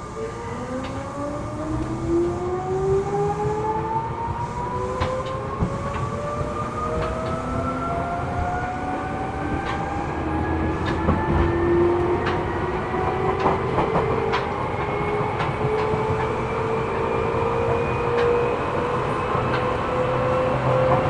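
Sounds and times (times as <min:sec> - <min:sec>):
traction motor whine: 0:00.0 - 0:13.6
train rolling rumble: 0:00.0 - 0:21.0.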